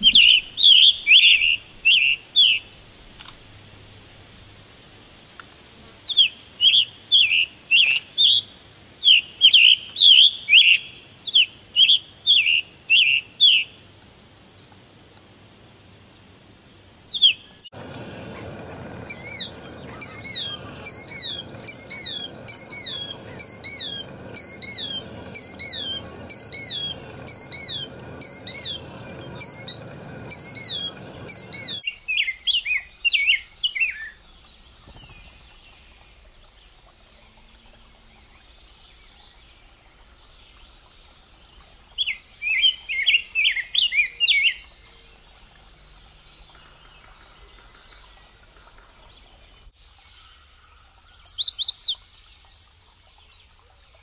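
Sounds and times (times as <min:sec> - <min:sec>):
high falling bird call: 0:00.0 - 0:02.7, 0:17.2 - 0:34.0, 0:50.8 - 0:52.0
background hiss: 0:00.0 - 0:54.0.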